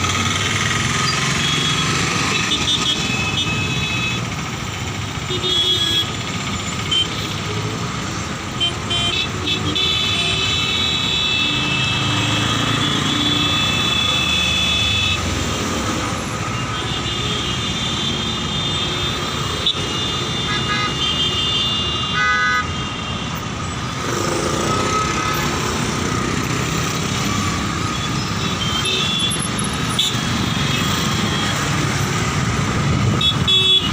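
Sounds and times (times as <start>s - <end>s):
road traffic: 0.0s - 33.9s
vehicle horns: 1.1s - 4.5s, 5.2s - 7.5s, 8.5s - 15.4s, 16.4s - 25.5s, 27.8s - 32.3s, 33.0s - 33.9s.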